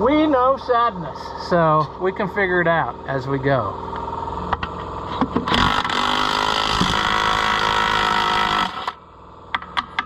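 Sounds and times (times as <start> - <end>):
machine hum: 0.0 - 10.0
pneumatic impact wrench hammering: 5.2 - 9.0.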